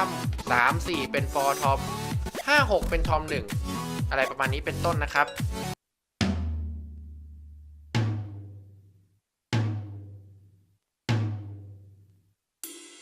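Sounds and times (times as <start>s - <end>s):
low electronic drum booms: 2.8s - 3.3s.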